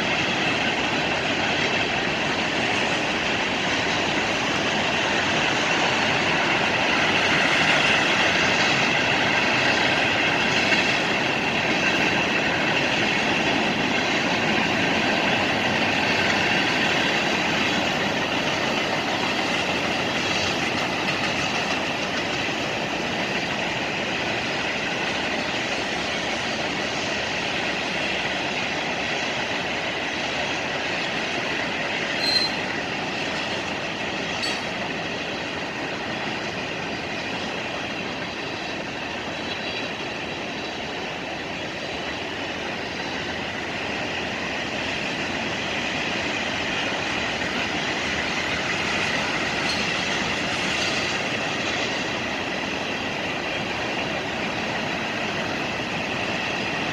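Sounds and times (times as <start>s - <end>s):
freight train wheels on rails: 0.0s - 56.9s
thin wheel squeal: 32.2s - 32.6s.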